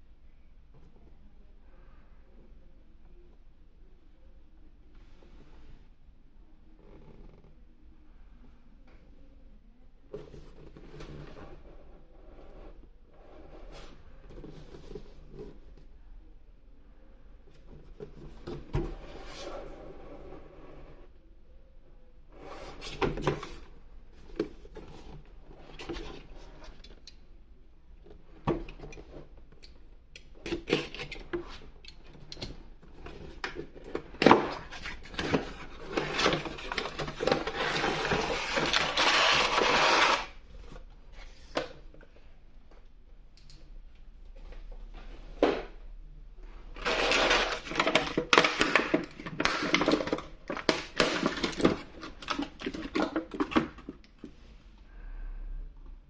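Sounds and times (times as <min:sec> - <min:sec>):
packaging rustling: 0:33.3 - 0:40.3, 0:46.8 - 0:53.8.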